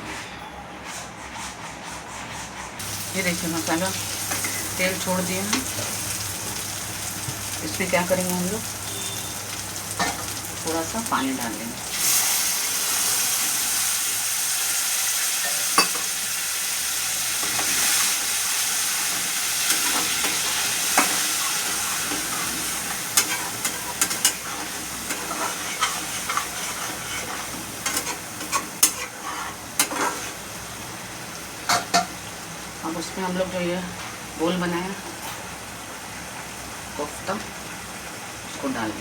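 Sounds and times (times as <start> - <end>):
oil sizzling in a pan: 2.8 - 34.4
spoon scraping a pan: 19.7 - 30.4.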